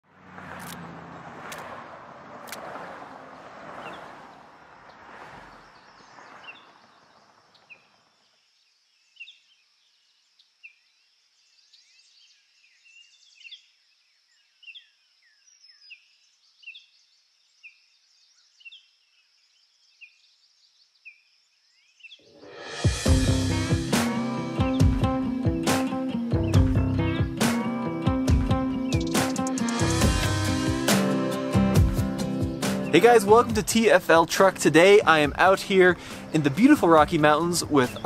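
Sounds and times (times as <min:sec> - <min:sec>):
small birds chirping: 0:03.8 - 0:22.3, 0:24.4 - 0:30.0, 0:32.1 - 0:38.0.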